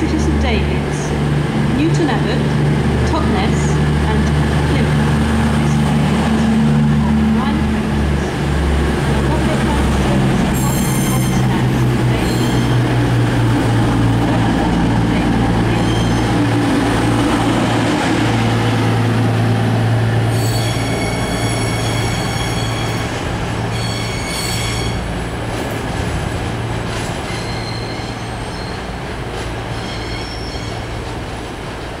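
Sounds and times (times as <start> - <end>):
diesel train engines running: 0.0 - 32.0
high wheel squeal: 20.3 - 23.1, 23.7 - 25.1, 27.3 - 29.0, 29.7 - 30.9.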